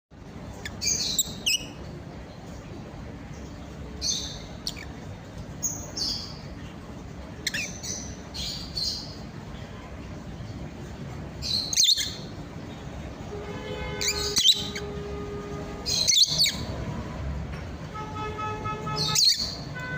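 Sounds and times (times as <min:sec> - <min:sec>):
steady low background noise: 0:00.1 - 0:19.9
parrots chirping and squawking: 0:00.6 - 0:01.8, 0:04.0 - 0:06.4, 0:07.4 - 0:09.2, 0:11.4 - 0:12.4, 0:13.8 - 0:16.8, 0:19.0 - 0:19.8.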